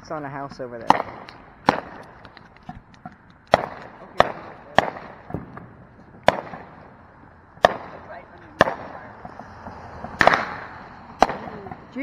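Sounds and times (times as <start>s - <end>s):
fireworks bangs: 0.8s - 12.0s
small firework pops: 10.1s - 11.8s.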